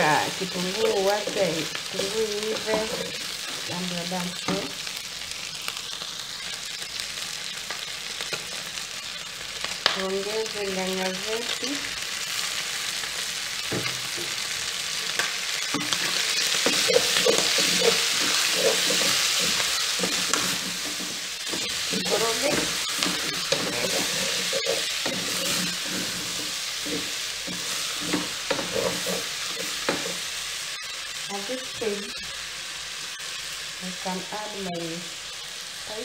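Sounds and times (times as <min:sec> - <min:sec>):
chicken sizzling in pot: 0:00.0 - 0:36.0
wooden spoon scraping pot: 0:15.7 - 0:30.2.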